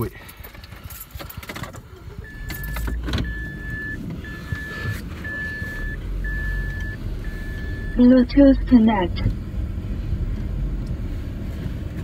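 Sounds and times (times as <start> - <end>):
car engine running: 0.0 - 12.0
dashboard warning chime beeping: 2.1 - 9.2.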